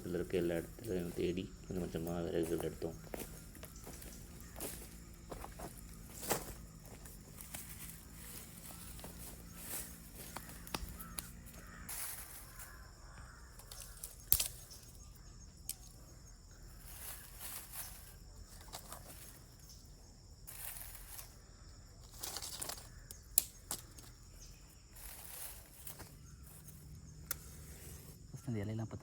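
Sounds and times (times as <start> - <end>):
dry leaves rustling: 0.0 - 28.3
sticks cracking: 10.2 - 11.3, 13.6 - 15.0, 22.1 - 24.2.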